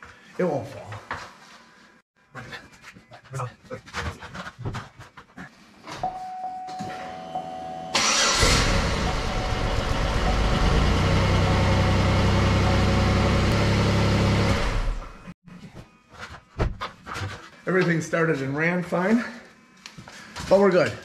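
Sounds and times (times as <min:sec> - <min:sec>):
car engine cranking and running: 0:08.0 - 0:15.3.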